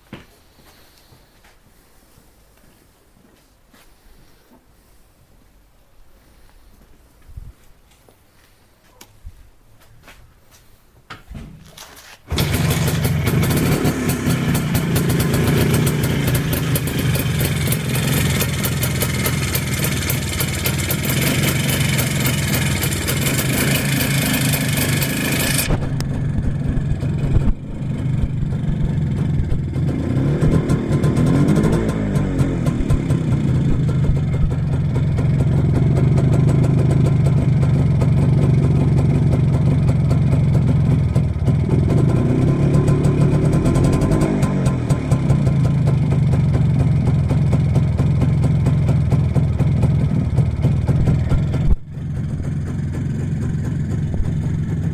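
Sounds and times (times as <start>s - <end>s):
two-stroke engine running: 12.3s - 54.9s.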